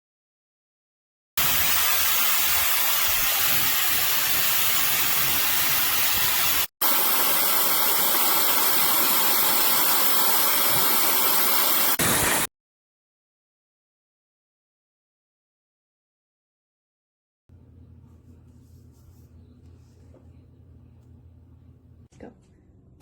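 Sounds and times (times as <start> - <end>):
hair dryer running: 6.0 - 12.5.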